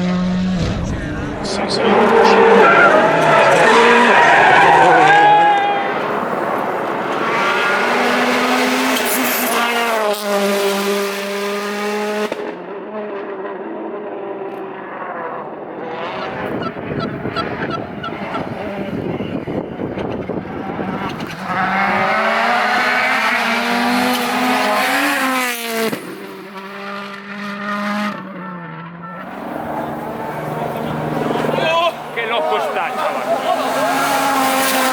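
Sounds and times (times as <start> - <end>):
rally car engine passing: 0.0 - 34.9.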